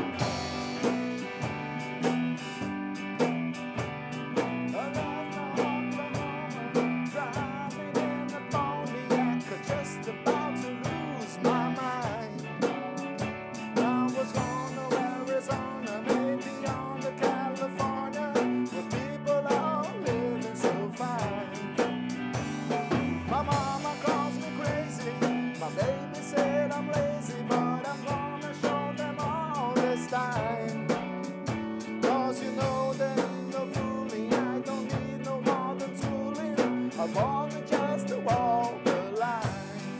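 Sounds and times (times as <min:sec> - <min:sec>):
lead guitar solo: 0:00.0 - 0:18.8
drum kit beat: 0:00.0 - 0:39.9.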